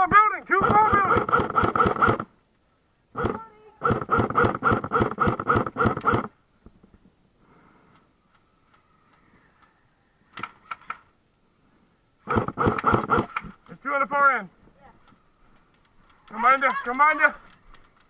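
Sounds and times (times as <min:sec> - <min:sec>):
airsoft gun firing: 0:00.6 - 0:02.3, 0:03.2 - 0:06.3, 0:12.3 - 0:13.5.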